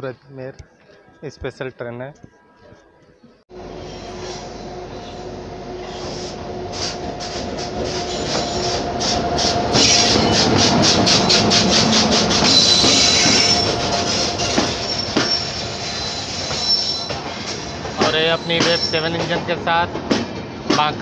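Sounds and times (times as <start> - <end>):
train rolling past: 3.5 - 21.0
high wheel squeal: 3.6 - 19.3.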